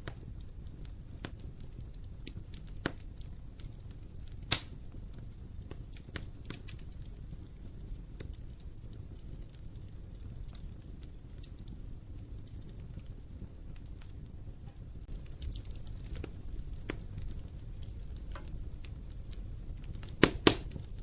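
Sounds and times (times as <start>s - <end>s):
fire flames rumbling: 0.0s - 21.0s
small fire crackles: 0.0s - 21.0s
loud wood pops: 20.0s - 20.8s.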